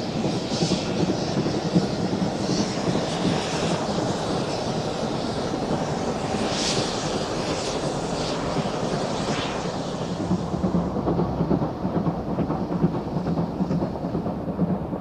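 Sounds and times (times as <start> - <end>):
steam locomotive chuffs: 0.0 - 15.0
steam locomotive exhaust roar: 0.0 - 15.0.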